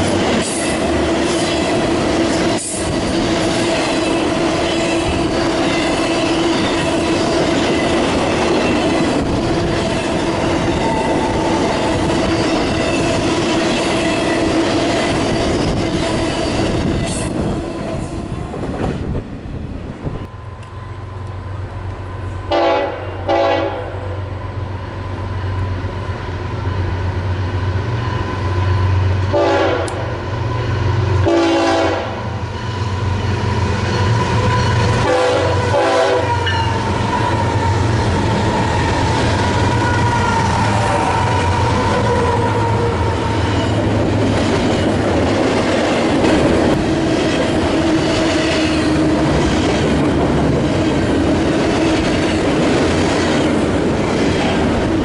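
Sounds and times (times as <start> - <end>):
diesel locomotive engines droning: 0.0 - 55.0
train air horn blasts: 22.5 - 24.2, 29.3 - 30.1, 31.2 - 32.6, 34.0 - 38.9.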